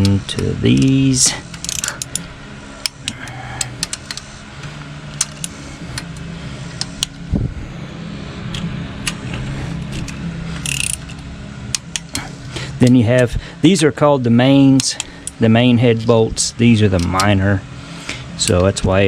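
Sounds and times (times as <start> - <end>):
wrench and socket clicking: 0.0 - 4.3, 10.0 - 12.2
low engine-like hum: 0.0 - 19.0.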